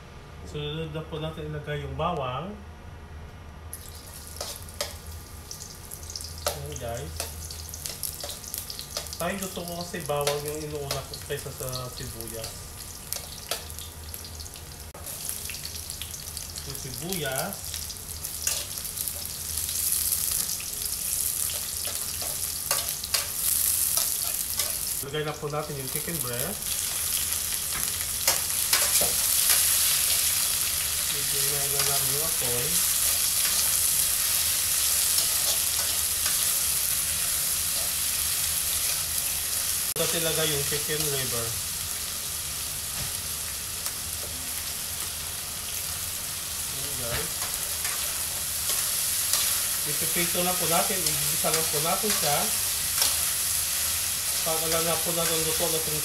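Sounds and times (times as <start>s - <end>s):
garlic and onion sizzling: 3.7s - 56.0s.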